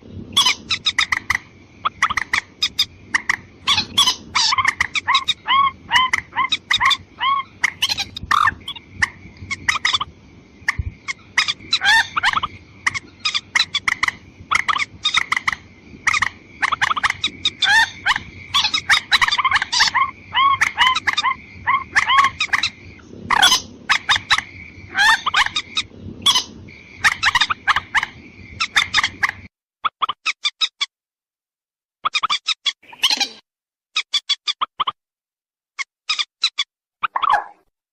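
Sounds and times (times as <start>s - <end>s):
rail bird calling: 0.2s - 29.5s.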